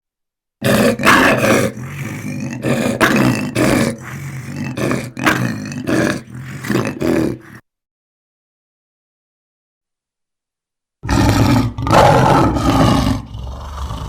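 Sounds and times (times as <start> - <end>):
lion roaring: 0.6 - 7.6, 11.0 - 14.0.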